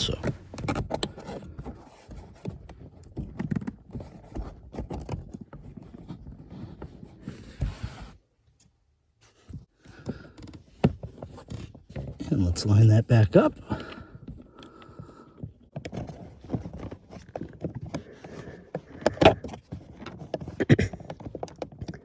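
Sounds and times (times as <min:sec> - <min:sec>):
plastic trim scraping and rattling: 0:00.1 - 0:07.6, 0:15.7 - 0:22.0.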